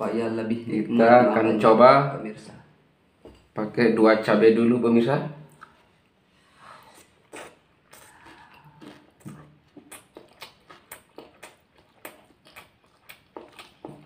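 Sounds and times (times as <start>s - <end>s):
close-up chewing: 6.8s - 14.0s.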